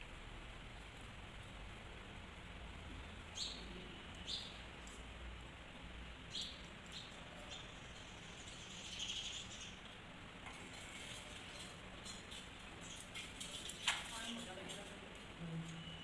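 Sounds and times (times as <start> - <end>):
faint steady hiss: 0.0 - 16.0
birds chirping: 2.9 - 5.1, 6.1 - 14.6.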